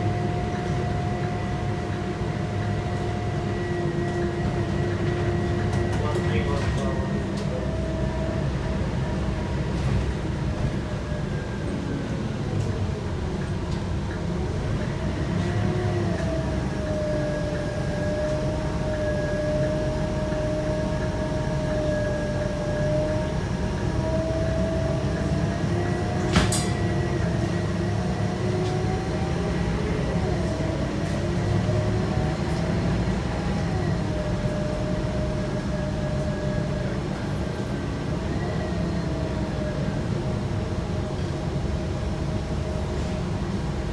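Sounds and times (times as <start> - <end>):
bus engine rumble with whine: 0.0 - 43.9.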